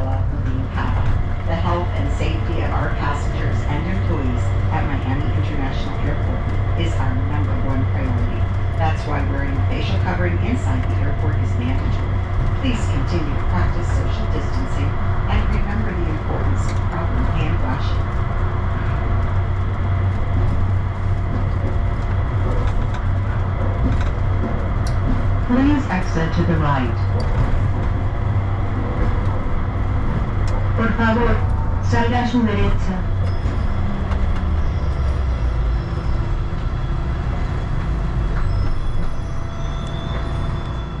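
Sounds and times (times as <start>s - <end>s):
train hum and rumble: 0.0s - 41.0s.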